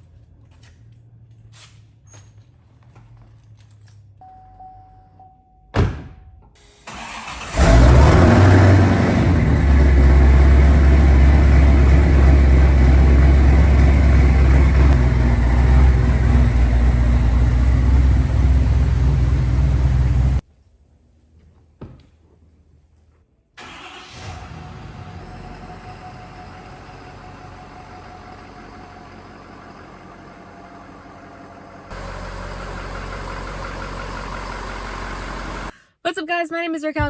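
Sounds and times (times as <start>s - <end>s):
truck engine starting and idling: 6.6s - 20.4s, 23.6s - 35.8s.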